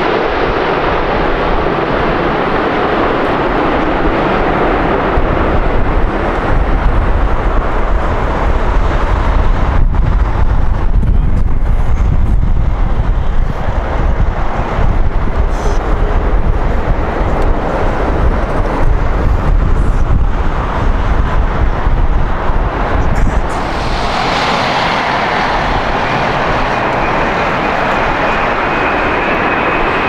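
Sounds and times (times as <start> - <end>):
jet engine rumble: 0.0 - 30.0
wind buffeting microphone: 0.0 - 30.0
high rushing noise: 22.5 - 29.1.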